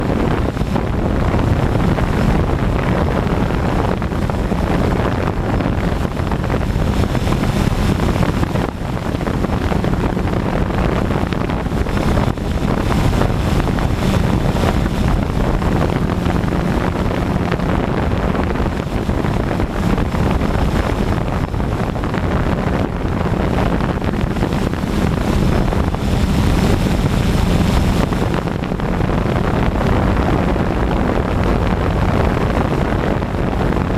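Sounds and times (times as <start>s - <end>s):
drone propellers buzzing: 0.0s - 32.7s
wind buffeting microphone: 0.0s - 33.9s.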